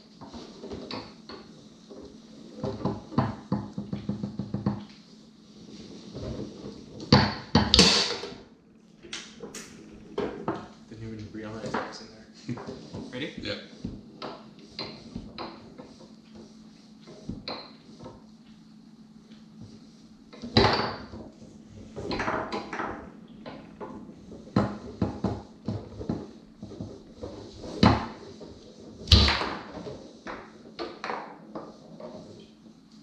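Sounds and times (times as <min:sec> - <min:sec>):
foosball ball clacking: 0:00.2 - 0:05.0, 0:06.1 - 0:10.8, 0:13.9 - 0:16.5, 0:20.4 - 0:32.4.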